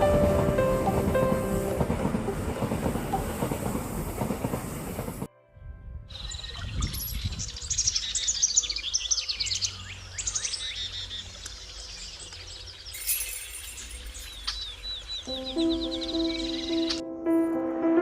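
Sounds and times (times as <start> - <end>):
birds chirping: 6.1 - 17.9.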